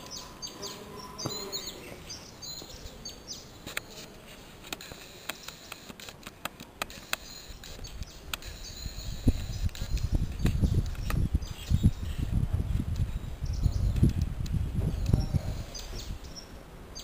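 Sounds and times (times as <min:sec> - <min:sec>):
small birds chirping: 0:00.0 - 0:17.0
sharp clicks: 0:03.6 - 0:11.3.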